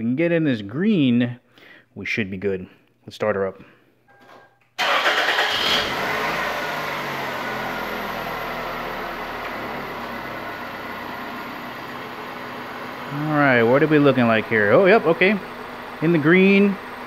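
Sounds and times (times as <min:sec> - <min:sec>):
car engine starting and idling: 0:04.8 - 0:17.0.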